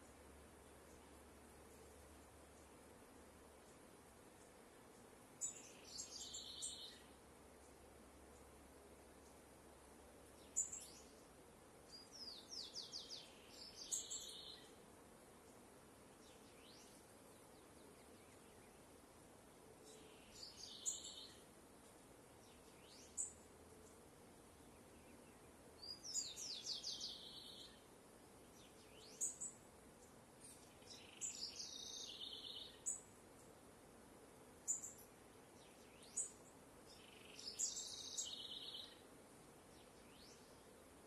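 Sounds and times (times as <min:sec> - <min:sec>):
faint outdoor hiss: 0:00.0 - 0:41.0
birds twittering: 0:05.4 - 0:07.1, 0:11.9 - 0:14.8, 0:19.8 - 0:21.4, 0:24.6 - 0:33.0, 0:34.7 - 0:39.0.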